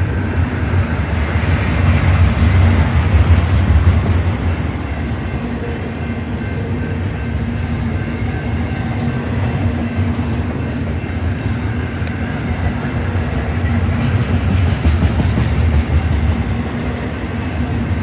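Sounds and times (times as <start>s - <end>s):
freight train rumbling on rails: 0.0s - 18.0s.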